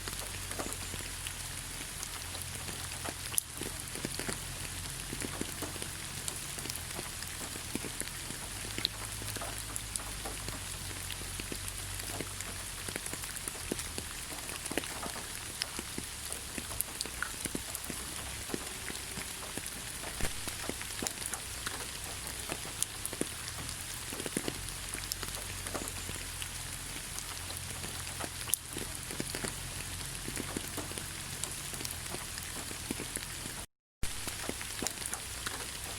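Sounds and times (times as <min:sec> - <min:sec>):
rain falling: 0:00.0 - 0:35.9
raindrops ticking: 0:00.0 - 0:35.9.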